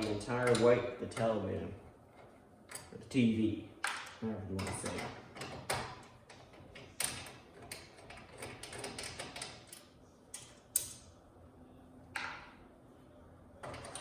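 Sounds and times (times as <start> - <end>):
metal brackets clicking and knocking: 0.0 - 1.4, 3.8 - 11.1.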